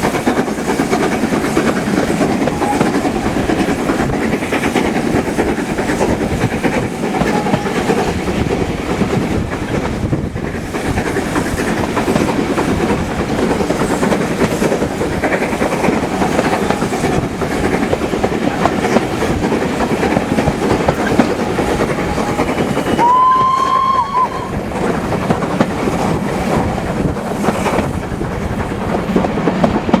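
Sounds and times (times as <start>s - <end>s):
train wheels clickety-clack: 0.0s - 30.0s
train whistle: 2.3s - 3.4s, 7.0s - 8.2s, 20.3s - 24.7s.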